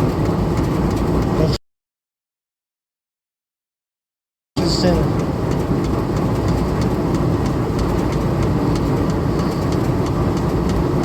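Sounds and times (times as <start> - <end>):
engine-driven line shaft running: 0.0 - 1.6, 4.6 - 11.0.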